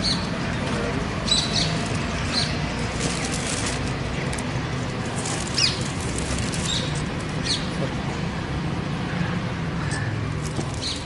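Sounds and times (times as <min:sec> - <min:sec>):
small birds chirping: 0:00.0 - 0:02.9, 0:05.3 - 0:08.2, 0:09.8 - 0:11.0.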